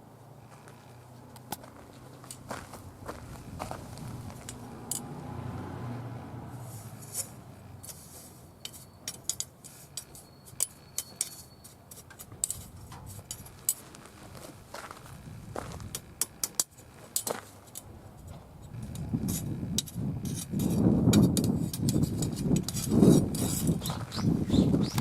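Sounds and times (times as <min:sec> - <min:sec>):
low rumble: 0:02.8 - 0:06.9.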